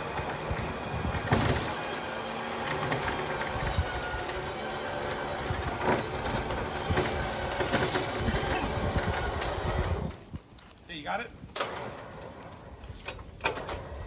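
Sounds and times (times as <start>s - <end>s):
vehicle engine rumbling: 0.0s - 10.4s.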